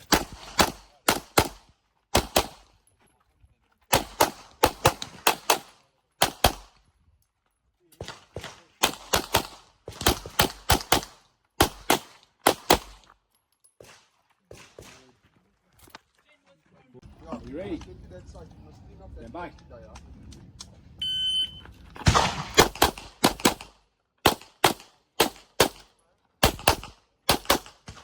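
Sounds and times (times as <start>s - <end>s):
rapid gunfire: 0.0s - 1.6s, 8.0s - 13.0s, 26.4s - 28.0s.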